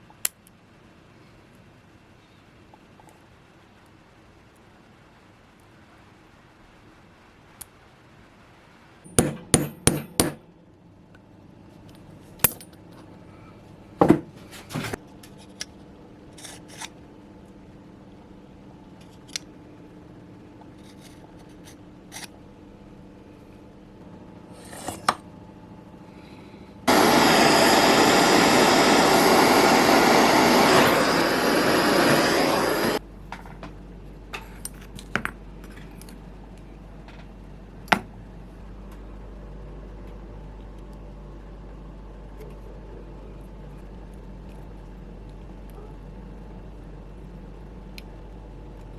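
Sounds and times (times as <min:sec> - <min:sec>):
metal parts clicking and tapping: 0:11.9 - 0:12.9
power tool running: 0:26.9 - 0:33.0.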